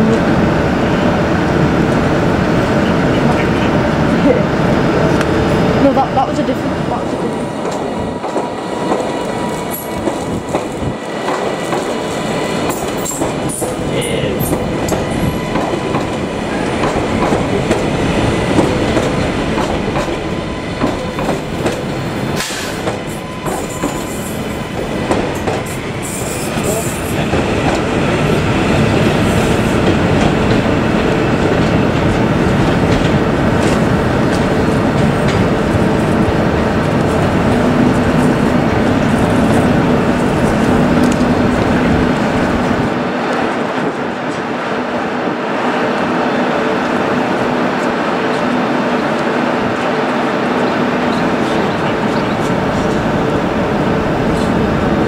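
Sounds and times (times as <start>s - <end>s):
train wheels clicking over rail joints: 7.6s - 28.0s.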